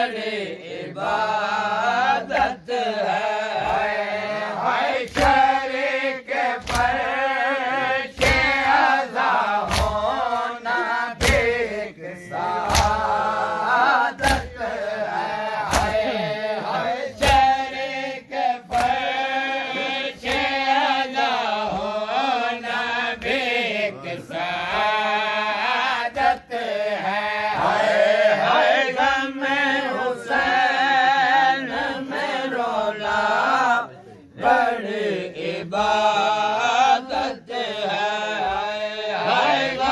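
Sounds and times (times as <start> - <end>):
men chanting a lament: 0.0 - 39.9
chest-beating slaps: 2.2 - 2.6, 3.6 - 4.0, 4.9 - 7.3, 8.0 - 11.8, 12.5 - 14.8, 15.4 - 18.0, 18.6 - 20.8.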